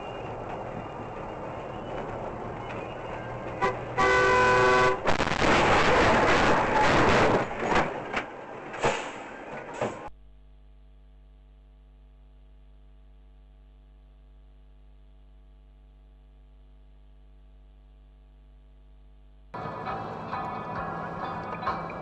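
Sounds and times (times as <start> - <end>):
loud road noise: 0.0 - 10.1, 19.6 - 22.0.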